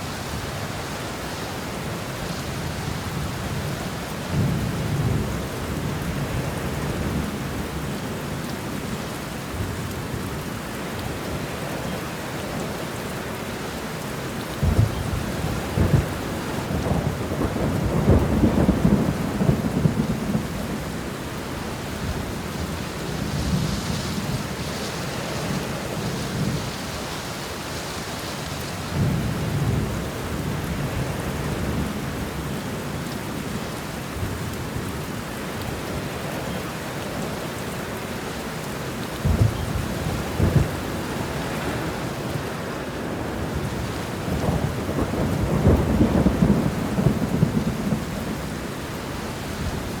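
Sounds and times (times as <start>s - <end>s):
heavy rain: 0.0s - 50.0s
rolling thunder rumbling: 14.6s - 27.8s, 39.2s - 50.0s.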